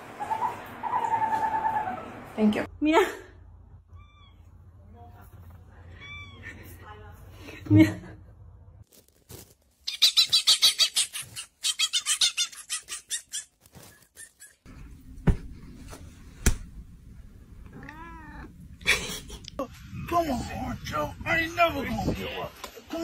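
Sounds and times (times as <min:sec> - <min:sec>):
cat meowing: 0:03.9 - 0:04.5, 0:05.9 - 0:06.5, 0:17.6 - 0:18.6
dog yipping: 0:09.9 - 0:14.7.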